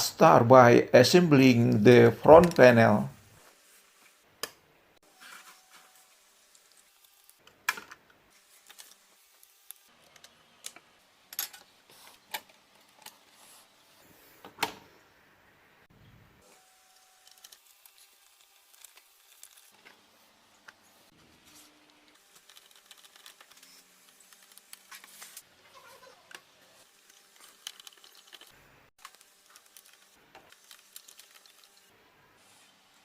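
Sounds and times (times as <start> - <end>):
small parts clicking and tapping: 7.4 - 13.2, 26.2 - 31.9.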